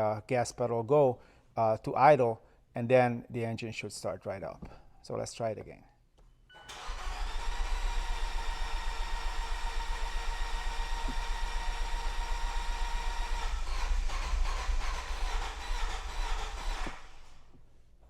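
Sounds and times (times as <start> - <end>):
starter cranking car engine: 6.7 - 17.5.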